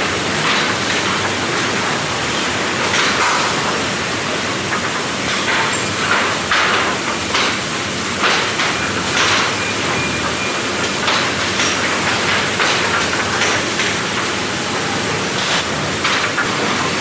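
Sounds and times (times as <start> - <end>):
sawmill machinery hissing: 0.1 - 17.0.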